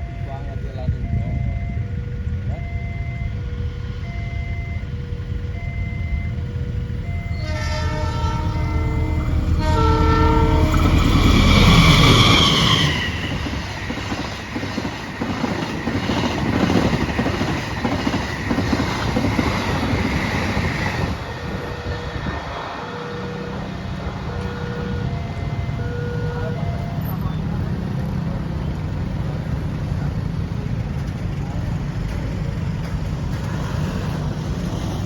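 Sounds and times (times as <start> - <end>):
level crossing warning chimes: 0.0 - 3.4, 4.0 - 7.5, 21.3 - 28.1
train rushing past: 0.0 - 35.0
locomotive horn: 7.0 - 13.7, 21.4 - 27.8.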